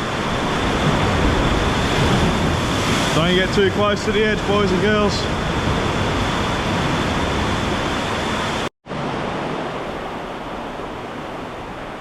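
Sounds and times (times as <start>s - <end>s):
waves surging into sea cave: 0.0s - 12.0s.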